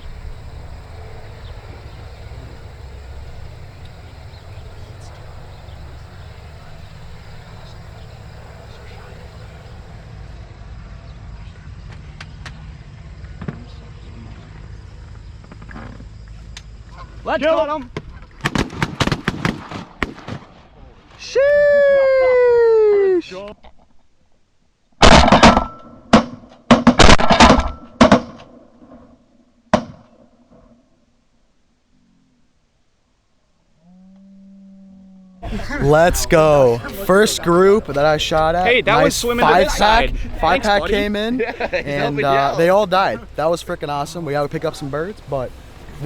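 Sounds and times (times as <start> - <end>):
wind buffeting microphone: 0.0 - 10.0, 35.4 - 46.0.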